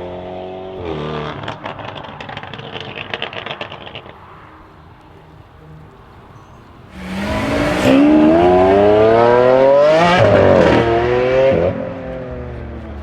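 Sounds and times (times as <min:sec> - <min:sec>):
car engine accelerating hard: 0:06.6 - 0:13.0.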